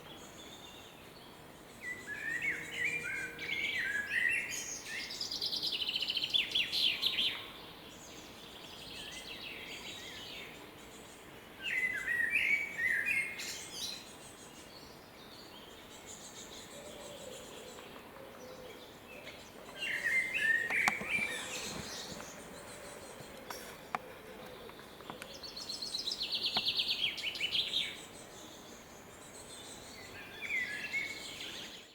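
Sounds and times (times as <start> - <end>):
faint bird calls: 16.2 - 28.0.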